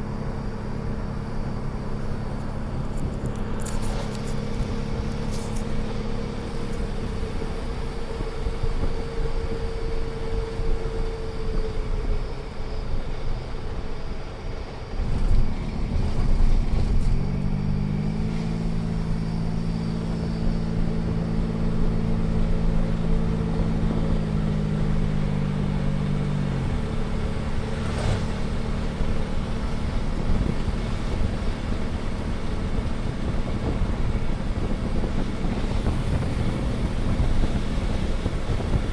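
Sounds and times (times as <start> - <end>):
car droning hum: 0.0 - 38.9.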